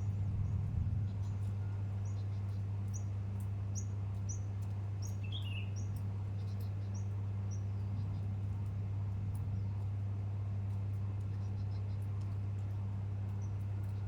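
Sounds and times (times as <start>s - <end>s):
low hum: 0.0s - 2.5s.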